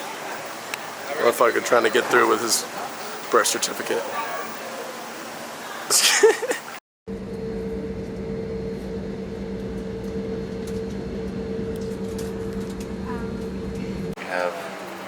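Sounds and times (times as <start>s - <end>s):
vehicle engine drone: 0.0s - 5.8s, 6.6s - 14.2s
voice: 0.0s - 6.8s, 13.0s - 15.0s
higher steady tone: 7.1s - 14.2s.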